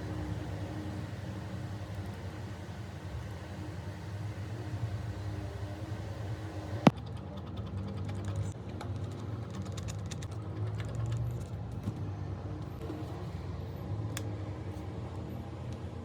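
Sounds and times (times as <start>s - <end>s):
steady low hum: 0.0s - 6.9s.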